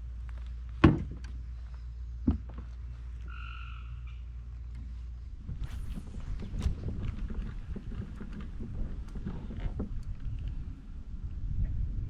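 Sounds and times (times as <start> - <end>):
wind buffeting microphone: 5.2 - 12.0.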